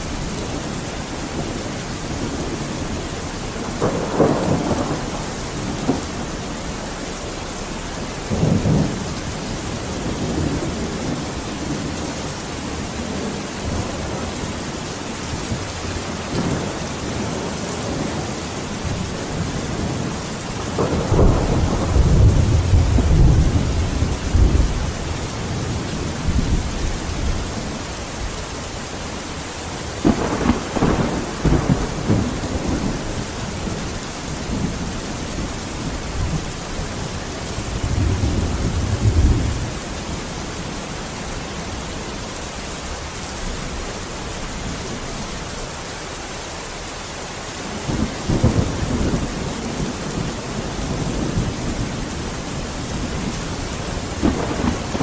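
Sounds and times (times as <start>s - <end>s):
thunder rumbling: 0.0s - 42.1s, 47.6s - 55.0s
heavy rain: 0.0s - 55.0s.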